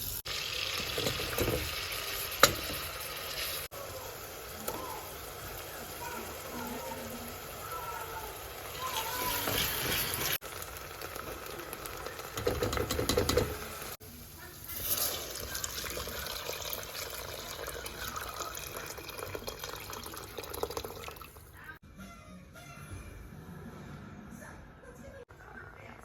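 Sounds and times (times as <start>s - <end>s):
water running and splashing: 0.0s - 12.4s, 14.6s - 21.6s.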